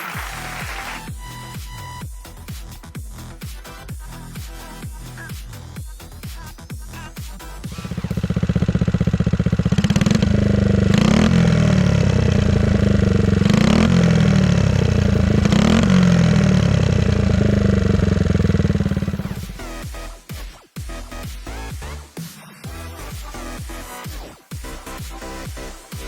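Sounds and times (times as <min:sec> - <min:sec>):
motorcycle engine idling and revving: 0:06.0 - 0:20.1.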